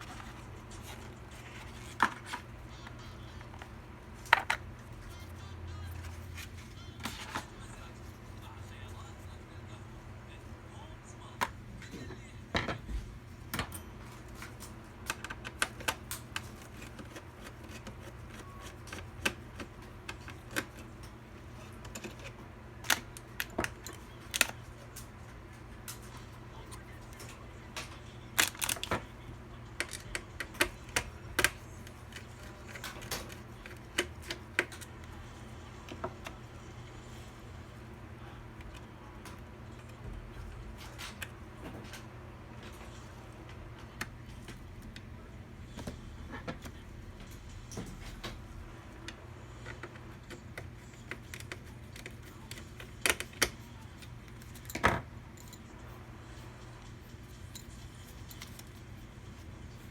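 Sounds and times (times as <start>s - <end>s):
steady low hum: 0.0s - 59.9s
computer parts clicking and rattling: 26.7s - 35.0s.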